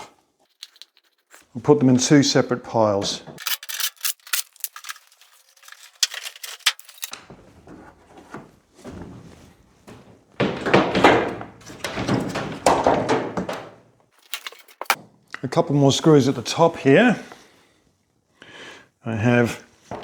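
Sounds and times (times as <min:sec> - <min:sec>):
scraping: 0:00.5 - 0:01.4, 0:03.4 - 0:07.2, 0:10.4 - 0:15.0
knocks: 0:10.4 - 0:13.8.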